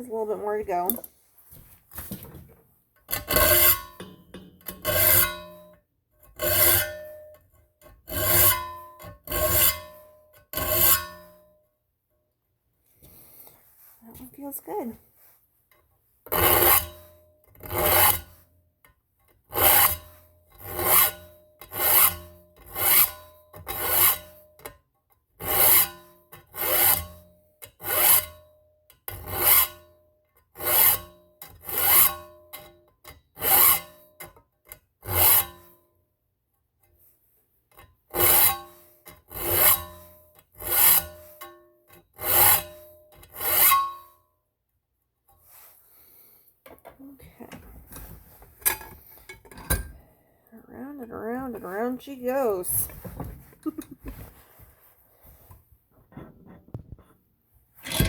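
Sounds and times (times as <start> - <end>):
metal file rasping on blade: 6.4 - 7.1, 8.1 - 10.0, 10.6 - 11.2, 16.3 - 18.4, 19.5 - 24.4, 30.6 - 32.3, 38.1 - 41.6, 42.2 - 44.0.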